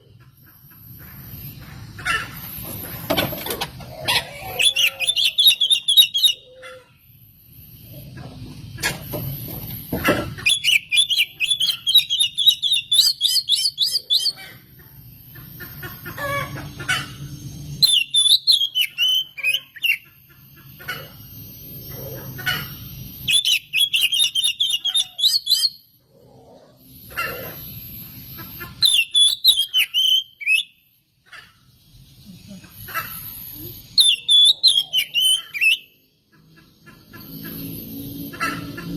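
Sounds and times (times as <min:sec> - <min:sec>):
magpie-robin singing whistles: 0:04.6 - 0:06.4, 0:10.4 - 0:14.4, 0:17.8 - 0:20.0, 0:23.2 - 0:25.8, 0:28.8 - 0:30.8, 0:34.0 - 0:35.9.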